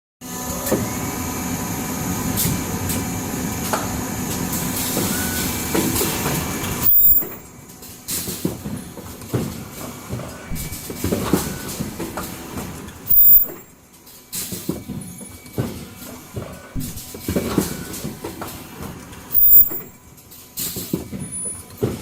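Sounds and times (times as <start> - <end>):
machine running: 0.3 - 21.5
machine clicks and knocks: 5.7 - 7.5, 8.1 - 13.7, 14.4 - 20.0.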